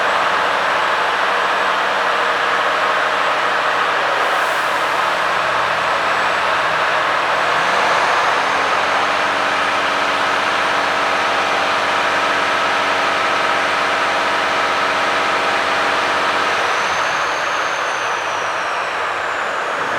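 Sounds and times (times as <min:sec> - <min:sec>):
diesel lorry idling: 0:00.0 - 0:19.9
hiss: 0:04.1 - 0:09.5
high whine rising and falling: 0:04.3 - 0:11.5.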